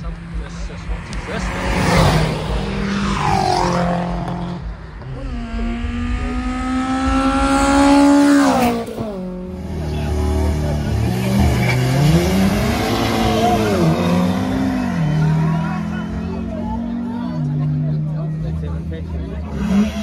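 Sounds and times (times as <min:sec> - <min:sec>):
car engine running and revving: 0:00.0 - 0:20.0
racing car engine at full throttle: 0:00.0 - 0:20.0.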